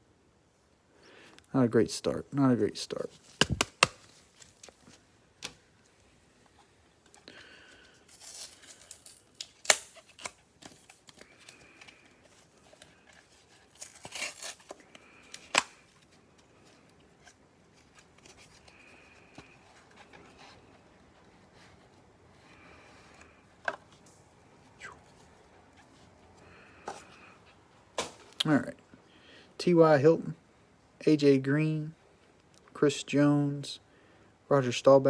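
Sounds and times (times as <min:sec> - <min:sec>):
sharp snaps: 0:03.4 - 0:04.1
packaging tearing and rustling: 0:08.0 - 0:20.3.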